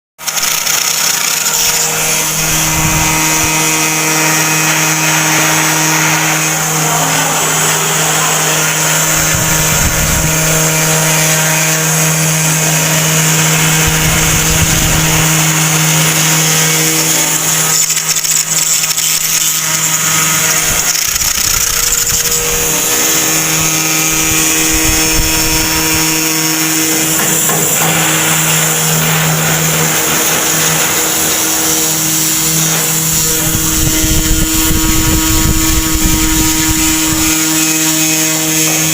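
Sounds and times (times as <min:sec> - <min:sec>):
cutting hiss: 0:00.2 - 0:38.9
spindle motor hum: 0:00.2 - 0:38.9.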